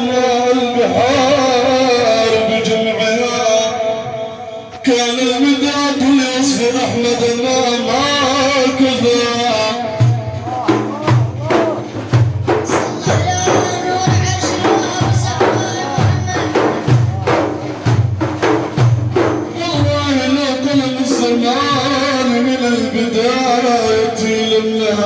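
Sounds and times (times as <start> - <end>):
religious praise melody: 0.0 - 25.0
frame drums beating: 8.0 - 22.5.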